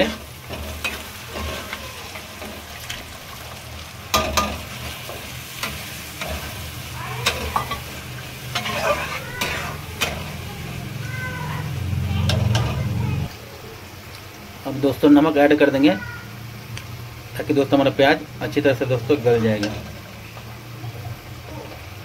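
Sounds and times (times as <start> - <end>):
spatula scraping and clacking on pan: 0.0 - 3.3, 4.1 - 10.5
food sizzling in hot oil: 0.0 - 22.0.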